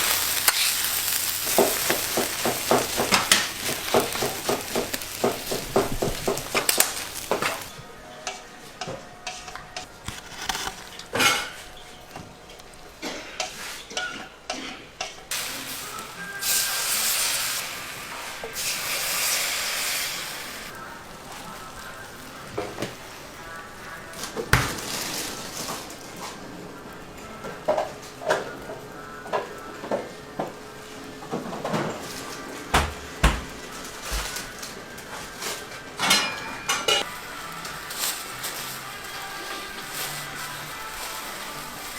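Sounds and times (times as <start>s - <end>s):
food sizzling in a pan: 0.0s - 8.4s, 12.7s - 41.9s
metal utensils scraping a pan: 0.0s - 12.0s, 13.0s - 17.7s.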